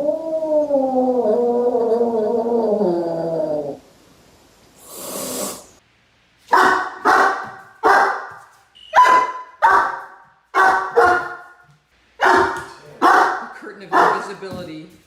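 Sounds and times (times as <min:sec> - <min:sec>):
dog barking: 0:06.5 - 0:11.6, 0:12.2 - 0:14.3.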